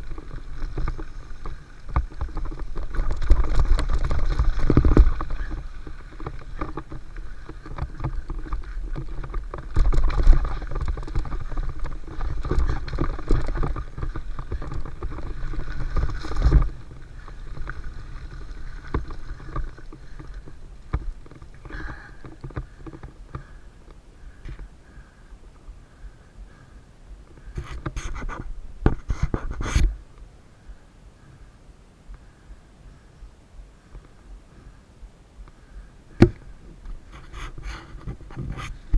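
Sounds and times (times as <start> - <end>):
bike rattles and knocks: 0.0 - 25.0, 36.1 - 38.9
bike tyre noise: 0.0 - 25.2
wind rumbling on microphone: 0.0 - 38.9.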